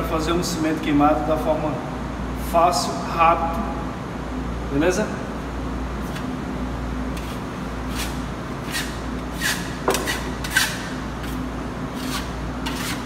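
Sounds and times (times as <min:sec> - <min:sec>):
spatula scraping on wall: 0:07.2 - 0:13.0.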